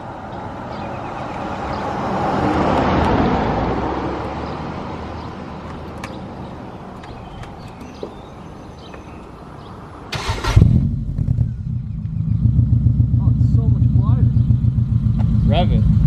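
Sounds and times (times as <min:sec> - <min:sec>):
car passing by: 0:00.6 - 0:05.7
low engine hum: 0:10.2 - 0:16.0.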